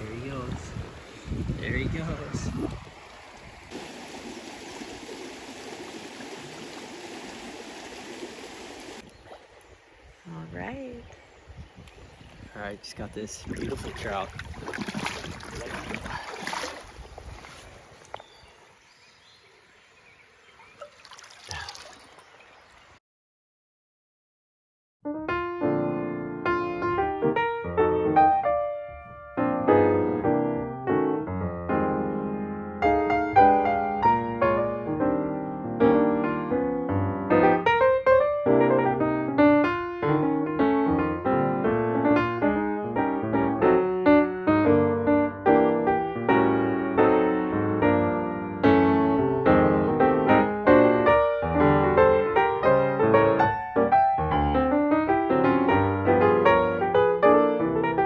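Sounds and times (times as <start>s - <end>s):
slow piano chords: 25.1s - 58.0s.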